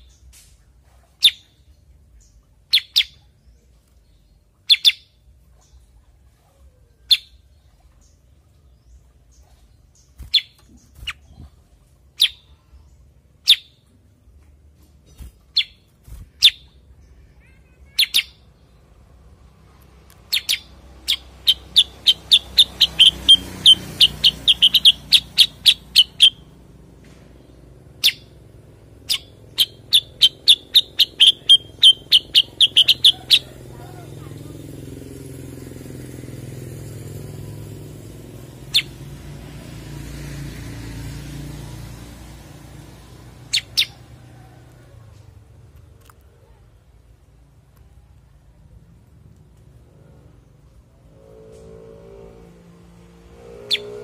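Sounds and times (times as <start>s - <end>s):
bird sharp high chirps: 2.2s - 3.4s, 4.1s - 5.8s, 9.3s - 11.5s, 12.2s - 13.8s, 15.1s - 18.7s, 20.2s - 26.6s, 27.4s - 33.8s, 38.6s - 39.0s, 43.5s - 44.0s, 53.6s - 54.0s.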